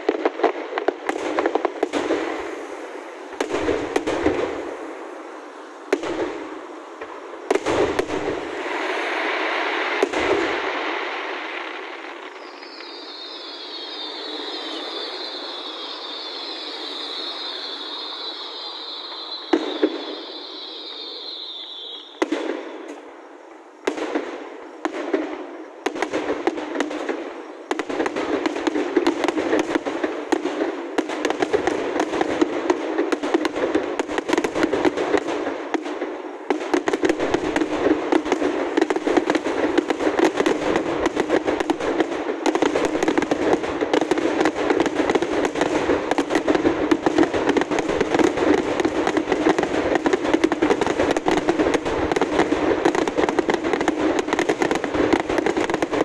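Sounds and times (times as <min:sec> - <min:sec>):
fireworks bangs and crackling: 0:00.0 - 0:56.0
fireworks shell bursts: 0:11.8 - 0:23.1.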